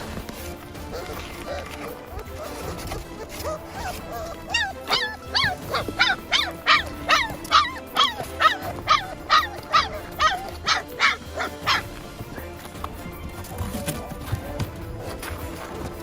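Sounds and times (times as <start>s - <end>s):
background music: 0.0s - 16.0s
puppy yelping: 0.9s - 12.5s.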